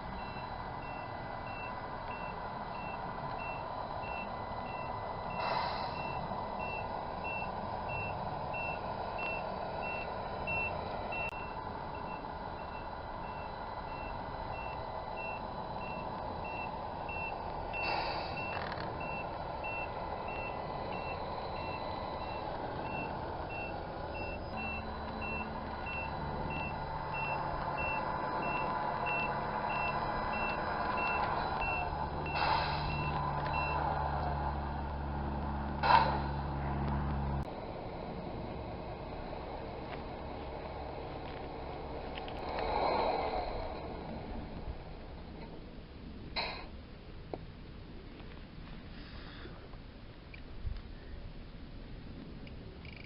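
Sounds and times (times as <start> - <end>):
reversing beeper: 0.0 - 34.2
engine running sound: 0.0 - 53.0
short air hisses: 5.4 - 6.1, 17.8 - 18.5, 32.3 - 33.0.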